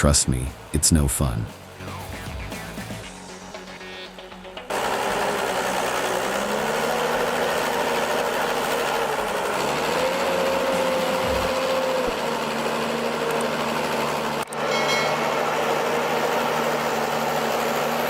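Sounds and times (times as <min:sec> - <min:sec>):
high whine: 0:00.0 - 0:12.4
heavy machine engine running: 0:00.0 - 0:18.0.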